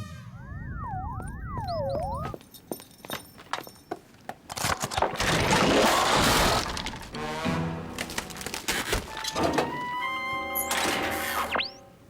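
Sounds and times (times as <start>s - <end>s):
notes stepping upward: 0.2s - 2.4s.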